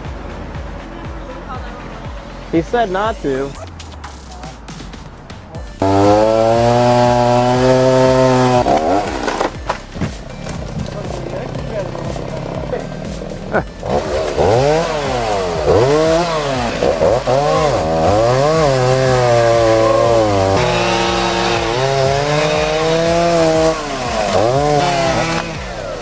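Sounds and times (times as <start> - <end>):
chainsaw engine revving: 5.6 - 26.0.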